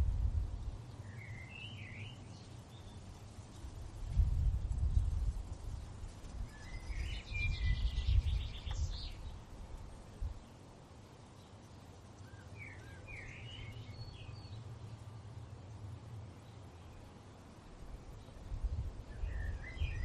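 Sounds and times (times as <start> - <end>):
low wind rumble: 0.0 - 20.0
songbird twittering: 0.9 - 3.1, 6.4 - 9.4, 12.2 - 15.0, 18.0 - 20.0.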